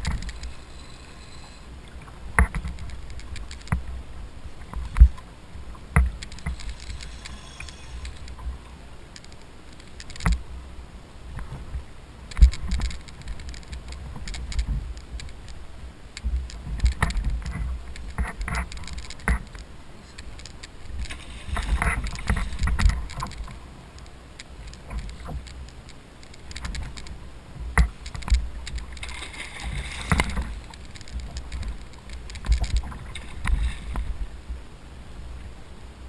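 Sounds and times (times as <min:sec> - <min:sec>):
water sloshing and splashing: 0:00.0 - 0:10.4, 0:12.3 - 0:34.6
wind rumble on microphone: 0:10.2 - 0:35.8.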